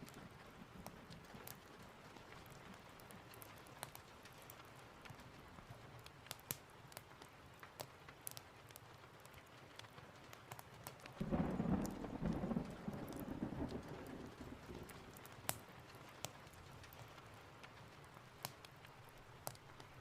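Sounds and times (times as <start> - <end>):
log fire crackling and popping: 0.0 - 20.0
steady rain: 0.0 - 20.0
thunder rumbling: 11.2 - 15.4.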